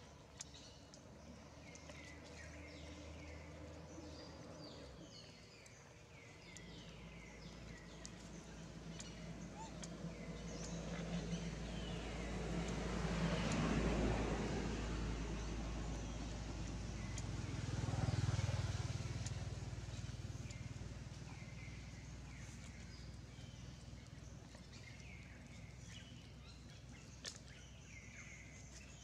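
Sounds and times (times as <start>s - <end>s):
motor vehicle passing: 6.7s - 28.9s.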